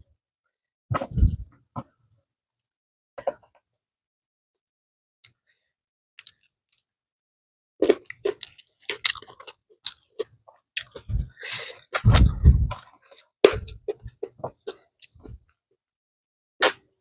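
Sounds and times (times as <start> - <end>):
chewing and crunching food: 6.2 - 6.9, 7.8 - 15.6.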